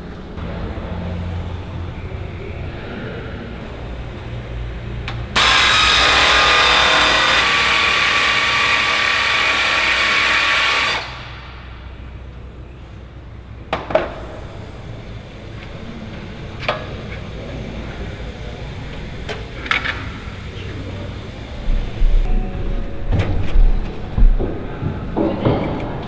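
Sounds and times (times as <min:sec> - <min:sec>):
power drill whining: 0:05.3 - 0:11.8.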